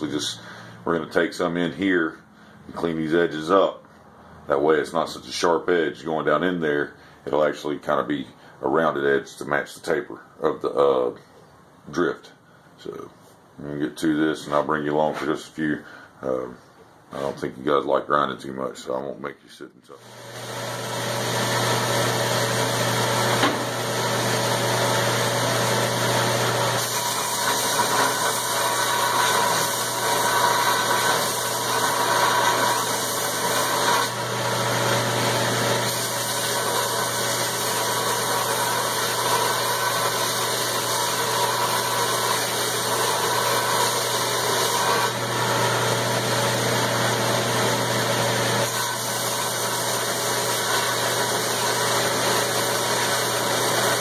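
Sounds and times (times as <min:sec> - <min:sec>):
grinder motor hum: 0:20.0 - 0:54.0
grinding rasp on steel: 0:26.7 - 0:45.8, 0:48.6 - 0:54.0.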